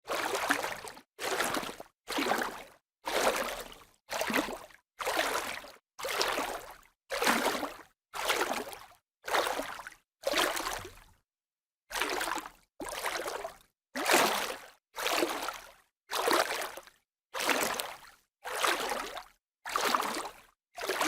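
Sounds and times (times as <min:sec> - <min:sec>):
bursts of sloshing water: 0:00.1 - 0:07.6.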